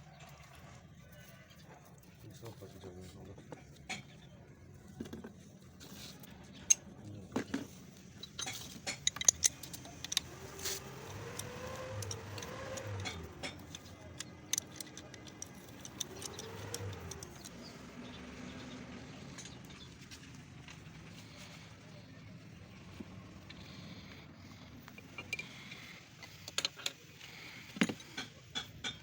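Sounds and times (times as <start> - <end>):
metallic clinks and taps: 8.2 - 10.3, 11.1 - 17.6, 24.9 - 27.0
motor rising and falling: 9.7 - 13.8, 15.4 - 19.4.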